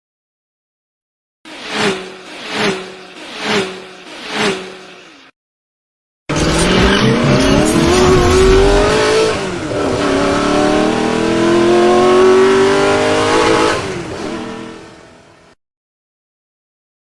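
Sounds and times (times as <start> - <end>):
car engine accelerating: 6.3 - 14.8.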